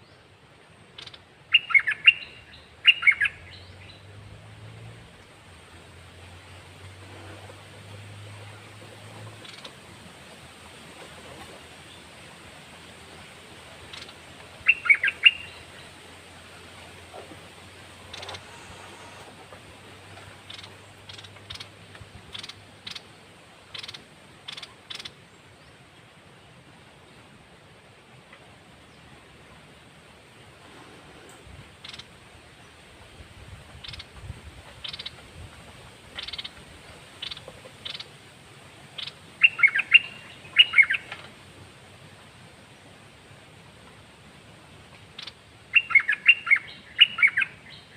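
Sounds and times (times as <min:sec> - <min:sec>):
faint steady hiss: 0:00.0 - 0:47.9
songbird scratchy chirps: 0:01.0 - 0:04.1, 0:13.9 - 0:15.7, 0:18.0 - 0:19.4, 0:20.2 - 0:23.1, 0:23.7 - 0:25.2, 0:31.8 - 0:32.1, 0:33.8 - 0:35.3, 0:36.1 - 0:36.6, 0:37.2 - 0:38.1, 0:39.0 - 0:41.2, 0:45.2 - 0:47.9
songbird whistled notes: 0:39.0 - 0:41.1.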